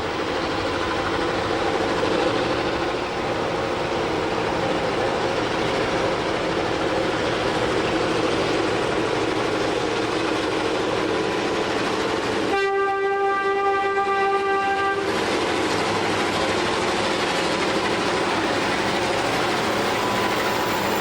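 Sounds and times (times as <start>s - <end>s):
diesel locomotive rumbling: 0.0s - 21.0s
locomotive air horn: 12.5s - 15.1s.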